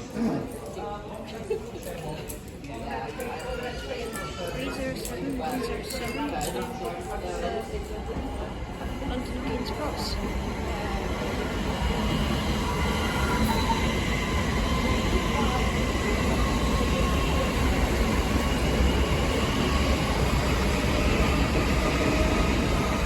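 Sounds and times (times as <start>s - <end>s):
train wheels rumbling on rail: 6.4s - 23.0s
faint high wheel squeal: 12.7s - 14.8s.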